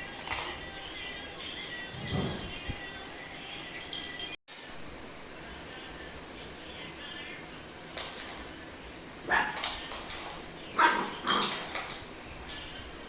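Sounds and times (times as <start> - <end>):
dog barking: 9.2 - 9.7, 10.8 - 11.6.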